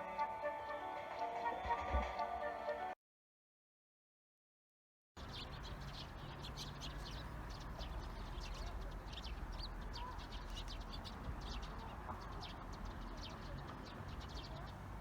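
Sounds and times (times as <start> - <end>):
small birds chirping: 5.2 - 15.0.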